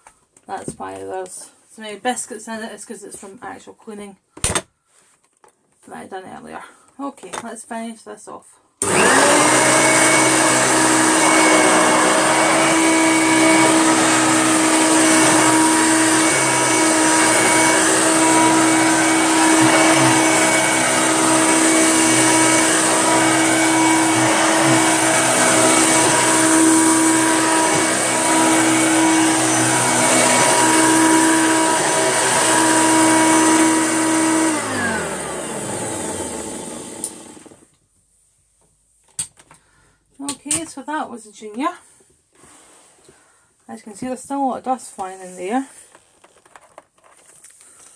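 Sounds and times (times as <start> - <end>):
vacuum cleaner running: 8.8 - 37.6.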